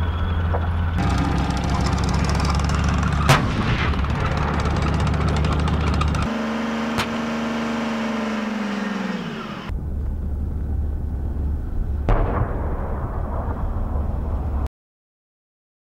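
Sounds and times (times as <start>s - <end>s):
tank low rumble: 0.0s - 14.7s
sharp bang: 3.2s - 4.5s.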